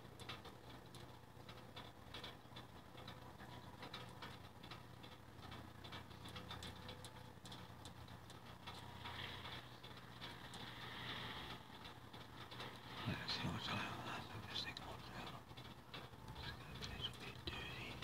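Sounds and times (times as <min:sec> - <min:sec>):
low steady hum: 0:00.0 - 0:18.0
raindrops ticking: 0:00.0 - 0:18.0
soft hiss: 0:07.4 - 0:18.0.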